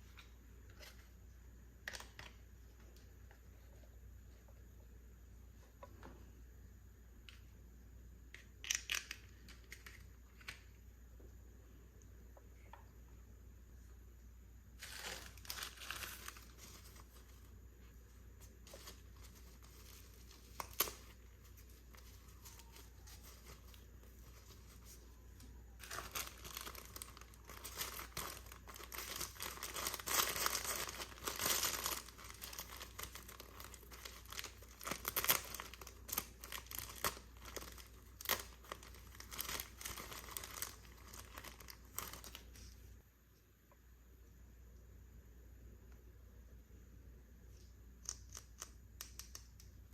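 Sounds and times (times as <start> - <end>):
packaging crinkling and tearing: 14.8 - 17.5, 18.6 - 42.6.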